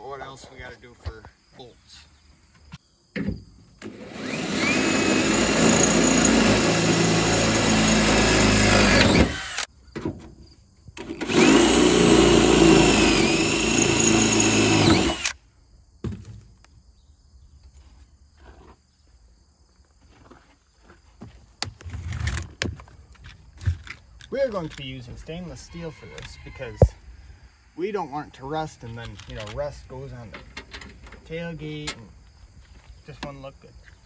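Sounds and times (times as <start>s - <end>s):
power drill drilling: 3.8s - 9.7s, 11.1s - 15.4s.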